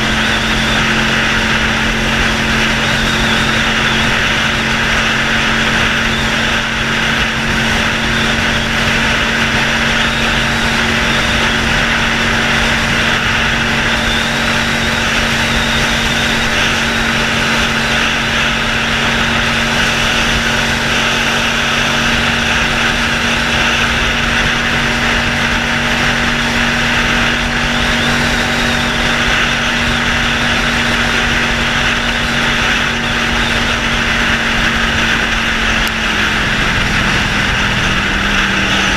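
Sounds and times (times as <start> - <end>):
motorcycle engine without muffler: 0.0 - 38.9.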